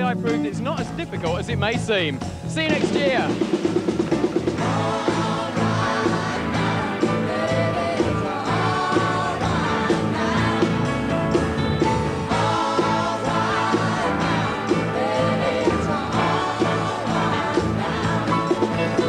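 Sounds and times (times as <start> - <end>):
pop song with singing: 4.6 - 11.2, 12.2 - 19.0.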